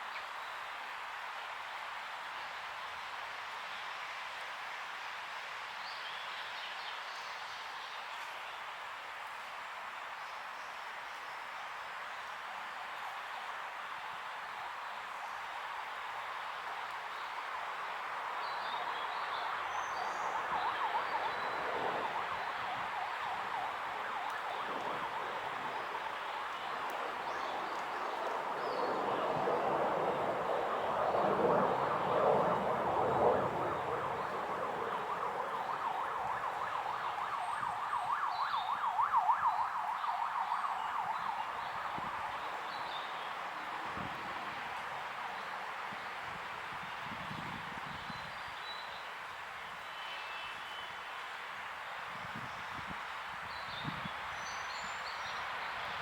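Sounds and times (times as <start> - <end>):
wavering wailing tone: 30.8 - 39.7.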